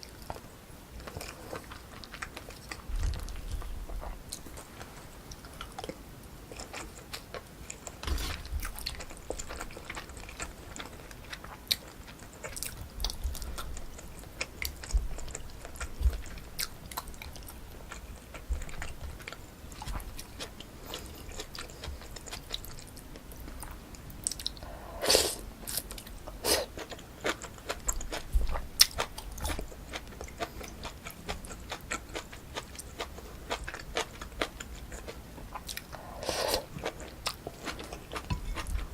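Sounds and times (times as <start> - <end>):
close chewing and biting: 0.0 - 38.9.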